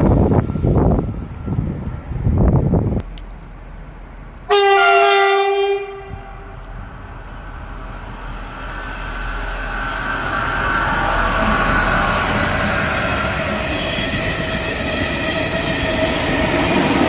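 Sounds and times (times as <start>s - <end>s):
train running hum: 0.0s - 17.0s
train horn blast: 4.5s - 6.6s.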